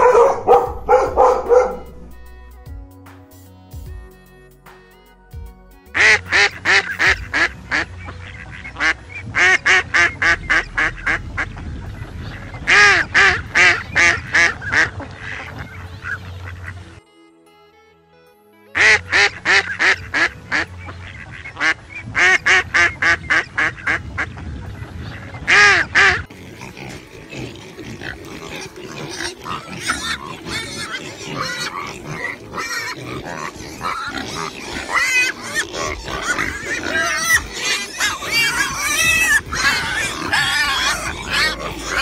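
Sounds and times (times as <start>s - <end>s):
pigs grunting and squealing: 0.0s - 2.3s, 6.0s - 16.9s, 18.8s - 42.0s
goose honking: 6.0s - 17.0s, 18.8s - 27.0s, 27.7s - 42.0s.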